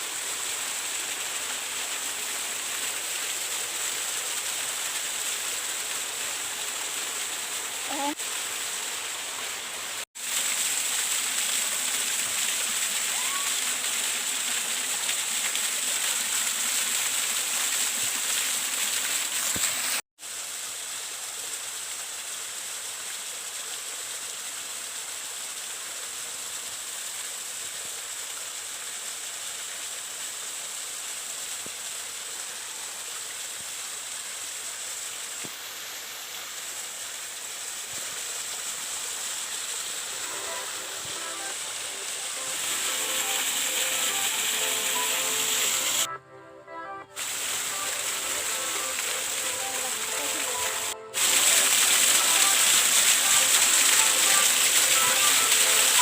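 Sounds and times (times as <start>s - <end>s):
waterfall rushing: 0.0s - 20.0s, 37.6s - 46.1s, 47.2s - 56.0s.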